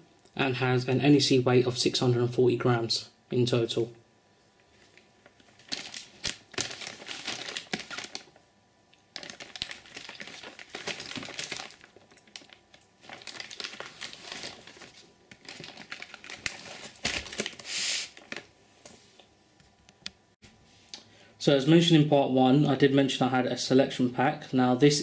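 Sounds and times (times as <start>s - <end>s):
packaging crinkling: 4.7s - 18.6s.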